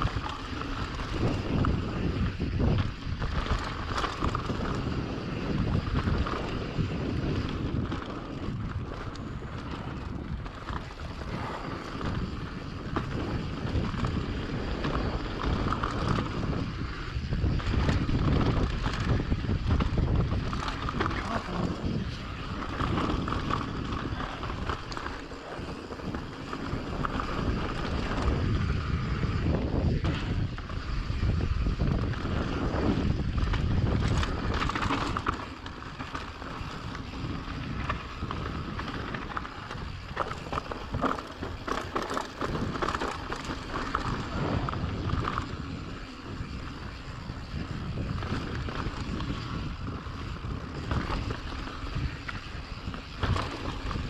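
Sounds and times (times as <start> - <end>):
bike rattling over rough ground: 0.0 - 54.0
bike tyre noise: 0.0 - 54.0
wind buffeting microphone: 0.0 - 54.0.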